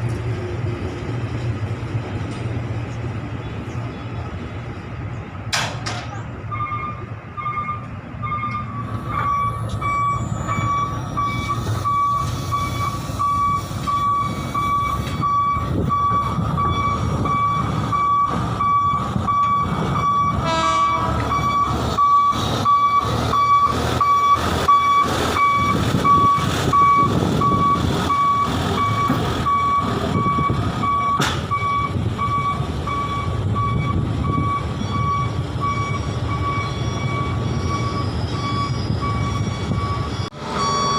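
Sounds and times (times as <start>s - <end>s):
truck engine running: 0.0s - 40.9s
truck reversing alarm beeping: 6.1s - 40.9s.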